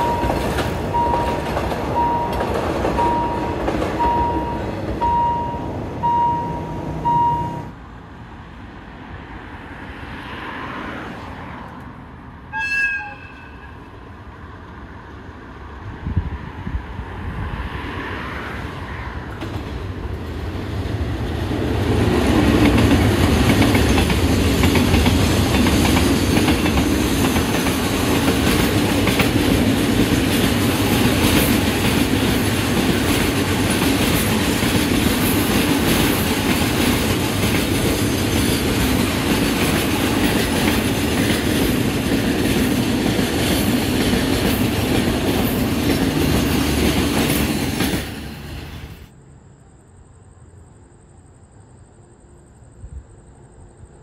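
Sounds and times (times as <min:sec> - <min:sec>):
train wheels rumbling over rails: 0:00.0 - 0:07.6, 0:15.8 - 0:49.1
warning tone beeping: 0:00.0 - 0:07.7
train horn blast: 0:12.5 - 0:13.9.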